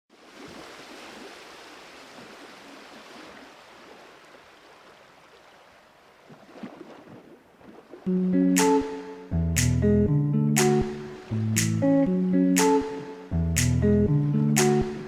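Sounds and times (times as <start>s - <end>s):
water rushing: 10.6s - 15.0s.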